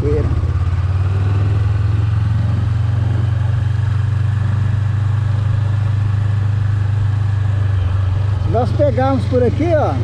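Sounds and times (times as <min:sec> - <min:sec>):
car engine drone: 0:00.0 - 0:10.0.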